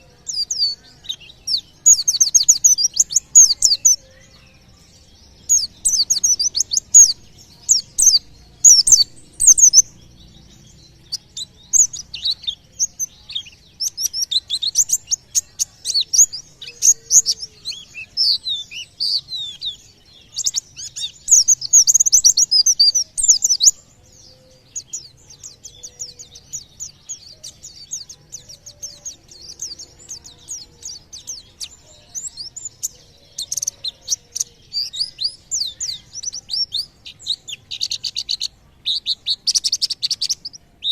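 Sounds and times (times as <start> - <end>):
bird chirping and trilling: 0.0 - 40.9.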